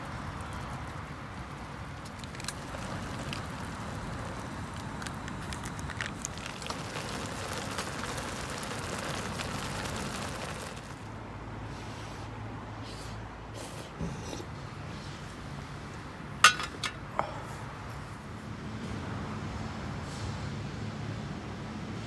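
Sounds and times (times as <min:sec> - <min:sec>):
rain hissing: 0:00.0 - 0:11.2, 0:14.4 - 0:20.6
wood fire crackling: 0:00.0 - 0:11.2, 0:14.3 - 0:19.6.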